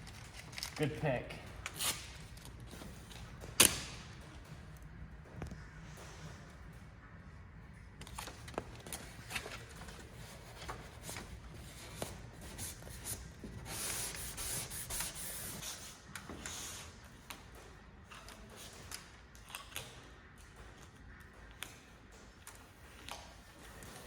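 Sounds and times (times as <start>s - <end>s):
hissing rub on vinyl: 10.2s - 16.9s.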